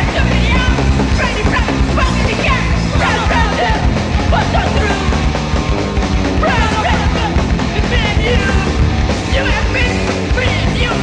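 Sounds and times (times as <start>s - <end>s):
shouted vocals: 0.0s - 5.4s, 6.3s - 11.0s
punk rock band playing: 0.0s - 11.0s.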